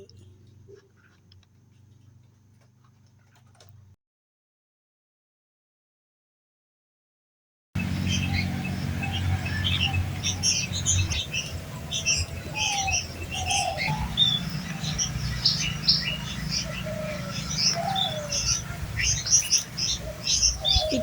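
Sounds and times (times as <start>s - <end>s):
low gliding bird notes: 7.8s - 21.0s
small birds chirping: 7.8s - 21.0s
steady low hum: 7.8s - 21.0s.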